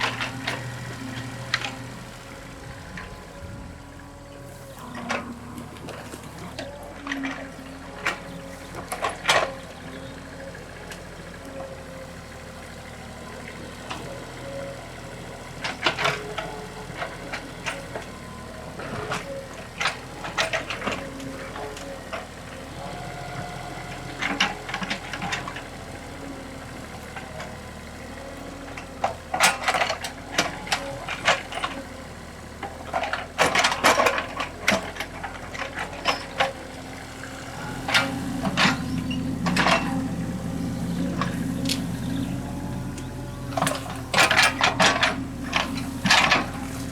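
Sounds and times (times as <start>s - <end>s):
excavator diesel engine running: 0.0s - 46.9s
machine knocks and clanks: 37.5s - 46.9s.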